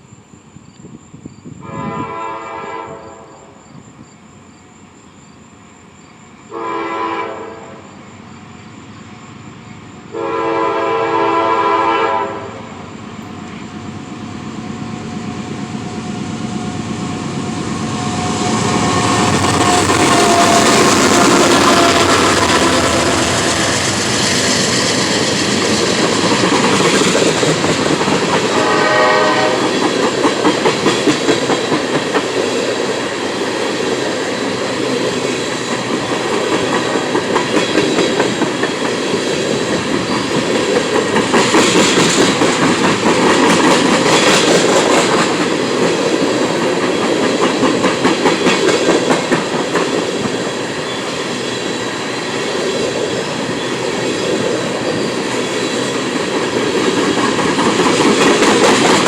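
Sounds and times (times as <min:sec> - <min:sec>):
freight train rumbling past: 0:00.0 - 0:59.0
wheels clacking over rail joints: 0:16.4 - 0:28.9, 0:29.6 - 0:59.0.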